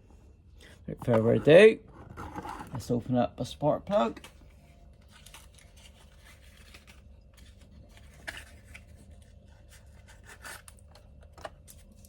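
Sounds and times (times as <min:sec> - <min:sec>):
packaging rustling: 0:05.0 - 0:12.0.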